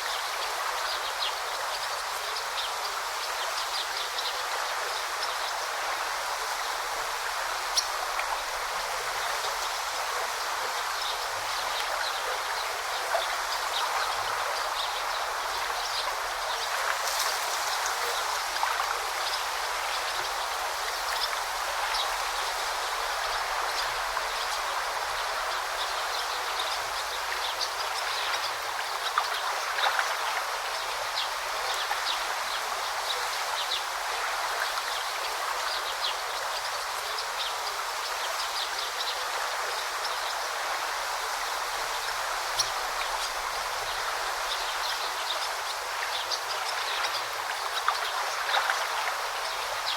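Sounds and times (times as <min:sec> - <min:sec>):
stream babbling over stones: 0:00.0 - 0:49.9.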